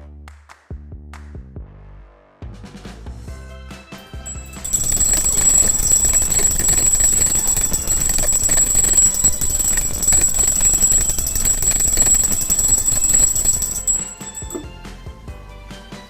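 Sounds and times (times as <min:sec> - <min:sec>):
hand bell ringing rapidly: 0:04.3 - 0:14.7.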